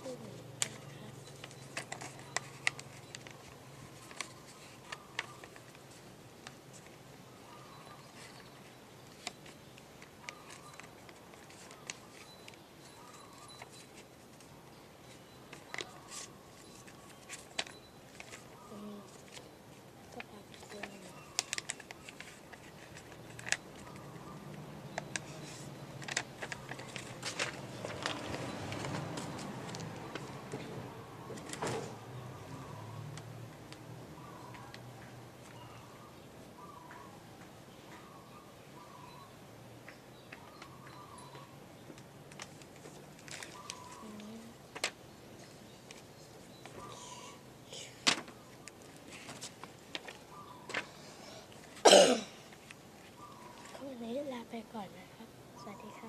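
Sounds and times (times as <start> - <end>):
paper being folded and creased: 0.6 - 6.0, 8.2 - 12.3, 20.1 - 30.3, 42.3 - 46.8.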